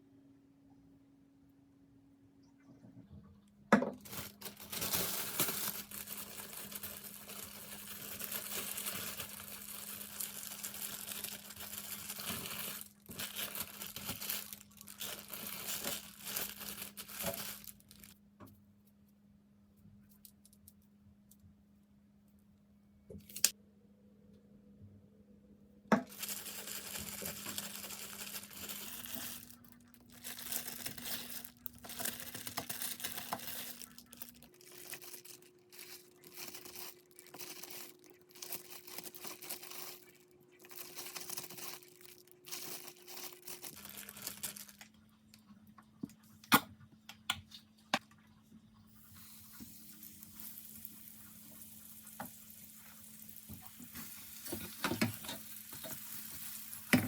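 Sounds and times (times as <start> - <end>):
low appliance hum: 0.0 - 57.0
packaging rustling and tearing: 4.0 - 18.2, 26.1 - 44.9.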